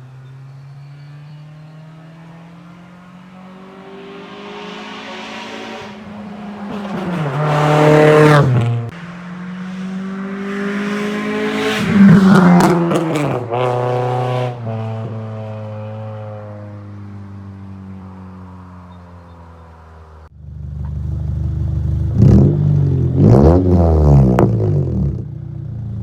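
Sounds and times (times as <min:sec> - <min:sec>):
car engine revving: 0:00.0 - 0:18.7, 0:20.9 - 0:25.4.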